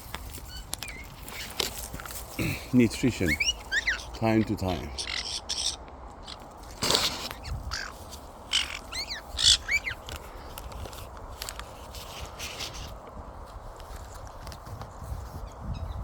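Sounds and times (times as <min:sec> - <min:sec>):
parrots squawking and chirping: 0:00.0 - 0:01.7, 0:02.3 - 0:10.5.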